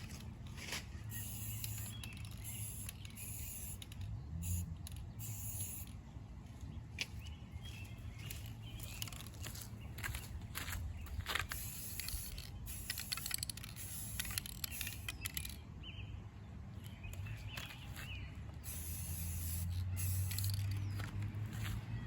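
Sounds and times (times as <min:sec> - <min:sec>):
hissing bursts: 0:11.6 - 0:15.2, 0:18.6 - 0:20.7.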